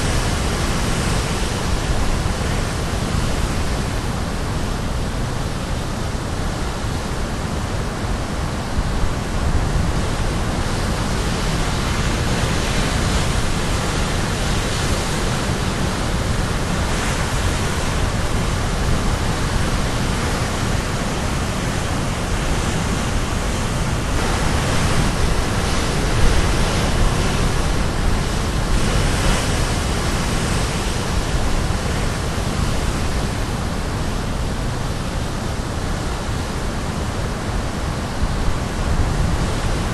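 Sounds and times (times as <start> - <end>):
surf breaking on rocks: 22.4 - 32.9.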